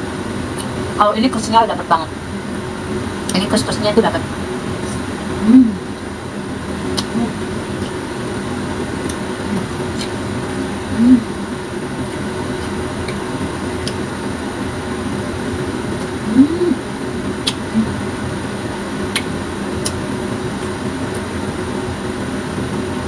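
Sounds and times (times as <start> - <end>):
fan humming: 0.0 - 23.0
person humming mm: 5.4 - 6.0, 7.0 - 7.5, 10.9 - 11.4, 16.2 - 16.9, 17.5 - 18.1
wet chewing clicks: 6.9 - 8.0, 9.0 - 10.2, 17.4 - 17.7, 19.1 - 20.0.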